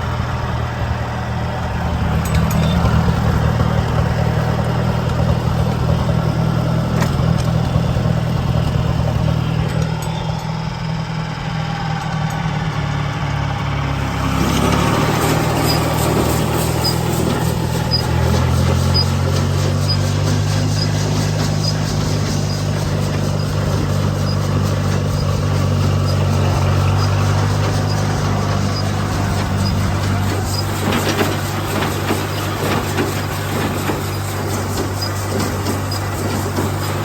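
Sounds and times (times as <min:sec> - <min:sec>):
tractor engine running: 0:00.0 - 0:37.0
clatter of clicks and knocks: 0:02.2 - 0:06.1, 0:14.1 - 0:37.0.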